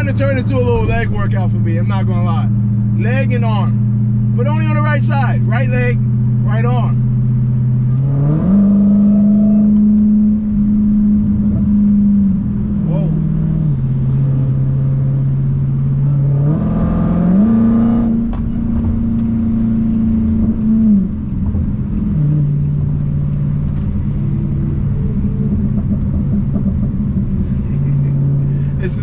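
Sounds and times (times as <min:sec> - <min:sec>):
car engine droning from cabin: 0:00.0 - 0:29.0.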